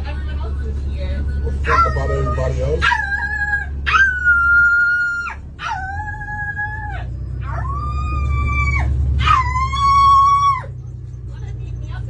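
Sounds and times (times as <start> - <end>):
woman imitating dog howl: 1.7 - 10.7.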